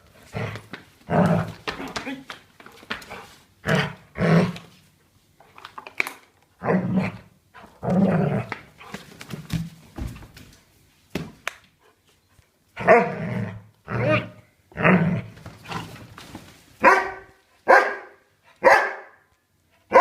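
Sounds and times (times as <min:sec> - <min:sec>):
puppy barking: 0:16.8 - 0:19.2.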